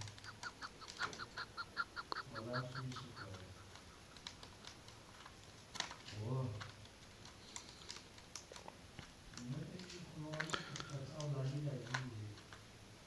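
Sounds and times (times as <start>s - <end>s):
partridge calling: 0.0s - 5.1s
sharp clicks: 0.0s - 12.6s.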